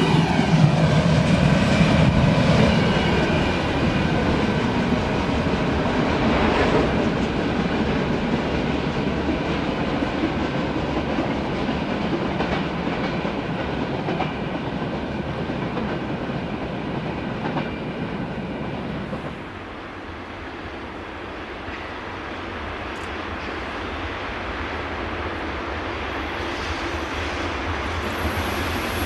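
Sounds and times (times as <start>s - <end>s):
freight train wheels clacking: 0.0s - 19.5s.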